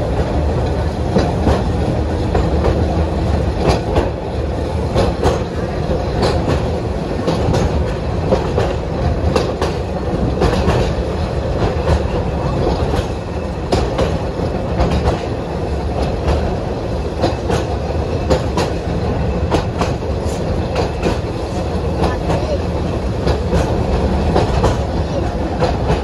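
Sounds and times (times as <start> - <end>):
rail vehicle rumble: 0.0 - 26.0
wheels clicking on rails: 0.0 - 26.0.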